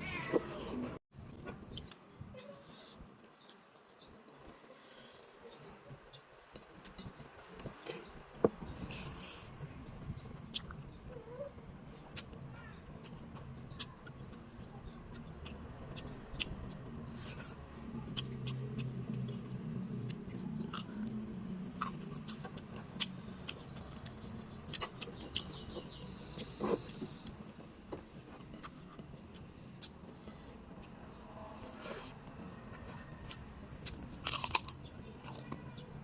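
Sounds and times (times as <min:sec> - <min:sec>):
wet chewing and smacking: 0:12.0 - 0:31.1, 0:32.1 - 0:35.6.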